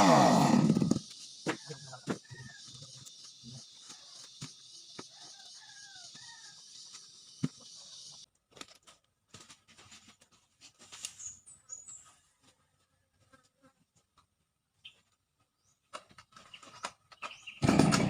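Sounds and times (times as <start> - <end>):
faint bird chirps: 11.1 - 12.4.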